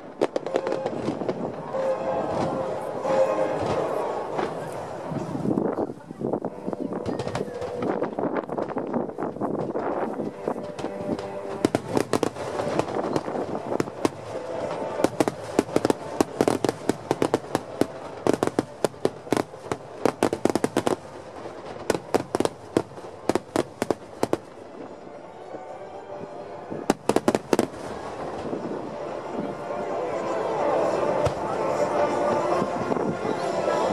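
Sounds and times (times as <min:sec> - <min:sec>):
fireworks bangs: 0:00.0 - 0:05.6, 0:06.9 - 0:24.9, 0:26.9 - 0:28.6.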